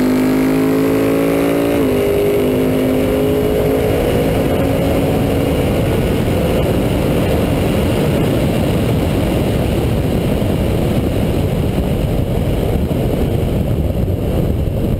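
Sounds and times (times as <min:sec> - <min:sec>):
loud low rushing noise: 0:00.0 - 0:14.9.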